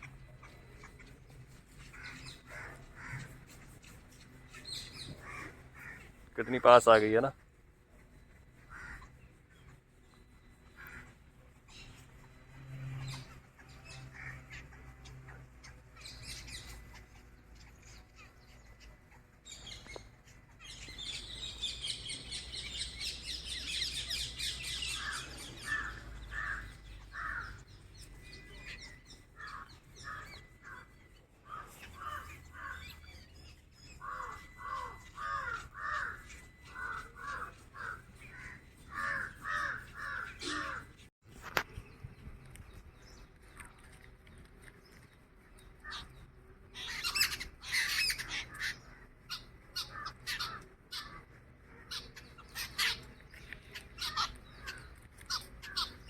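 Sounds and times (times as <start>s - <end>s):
small birds twittering: 0.0s - 56.0s
crows cawing: 1.9s - 3.4s, 5.1s - 6.9s, 8.6s - 9.2s, 10.7s - 11.2s, 13.0s - 14.9s, 24.8s - 27.7s, 29.4s - 33.1s, 34.0s - 41.0s, 46.8s - 51.2s.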